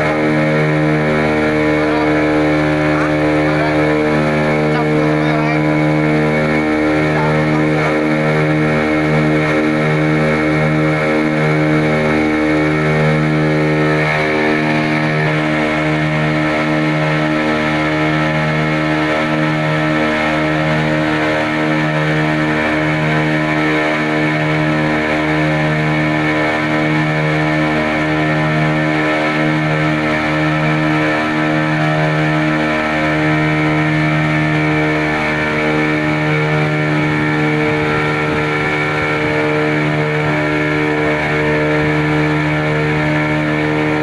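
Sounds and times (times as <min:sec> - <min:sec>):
boat engine droning: 0:00.0 - 0:44.0.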